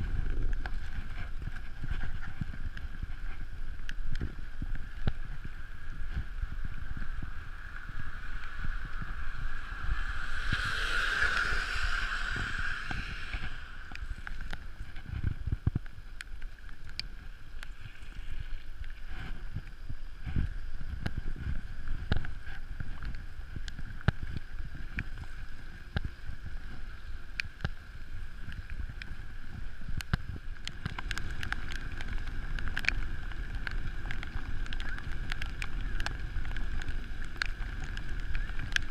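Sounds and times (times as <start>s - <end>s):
bike rolling on pavement: 0.0s - 38.9s
small rattles and clicks: 0.0s - 38.9s
wind rushing over microphone: 0.0s - 38.9s
steady hum: 5.3s - 16.2s
loud whoosh: 7.3s - 15.1s.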